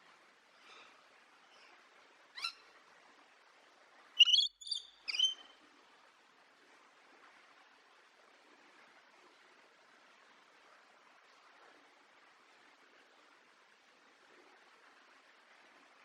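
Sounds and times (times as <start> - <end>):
faint steady hiss: 0.0 - 16.0
bird chirping: 4.2 - 5.5.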